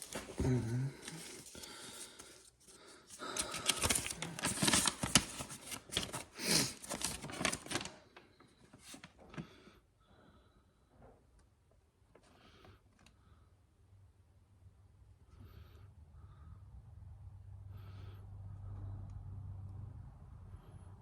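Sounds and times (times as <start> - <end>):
packaging and papers rustling: 0.0 - 9.4.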